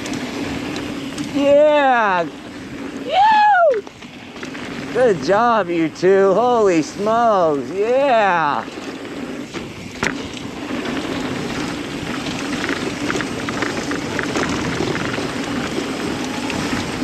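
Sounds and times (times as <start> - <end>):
bike tyres crunching over dirt: 0.0 - 17.0
wind rushing: 0.0 - 17.0
light ticks and rattles: 3.8 - 17.0.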